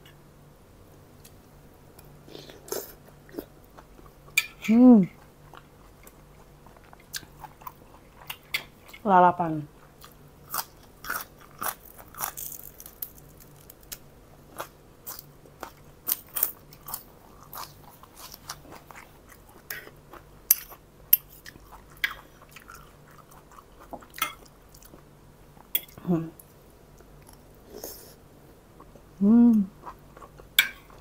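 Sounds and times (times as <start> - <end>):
crunchy chewing of spring onion: 9.8 - 25.9.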